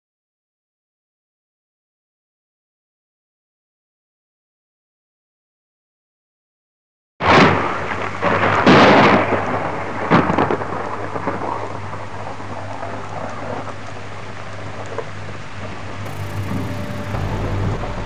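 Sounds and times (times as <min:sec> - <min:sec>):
heavy rain: 0:07.2 - 0:18.0
thunder cracking: 0:16.1 - 0:18.0.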